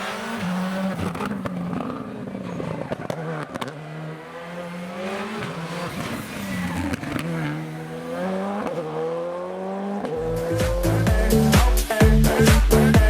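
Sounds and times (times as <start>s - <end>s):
rally car engine accelerating: 0.0s - 13.0s
music with heavy beat: 10.2s - 13.0s.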